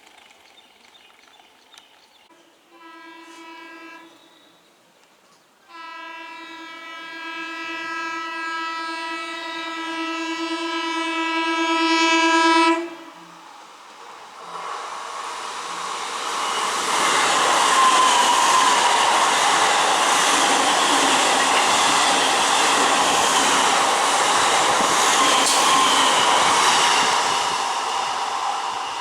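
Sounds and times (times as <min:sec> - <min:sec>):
train horn: 0:02.3 - 0:04.6, 0:05.6 - 0:13.5
train passing at high speed: 0:08.4 - 0:29.0.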